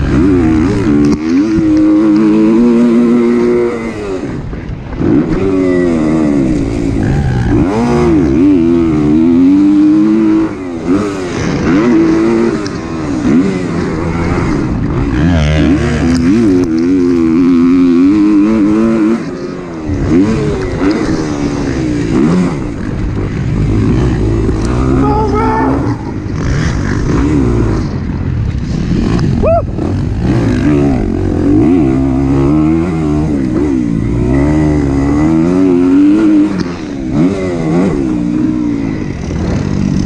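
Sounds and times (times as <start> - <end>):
motocross bike engine revving: 0.0 - 40.0.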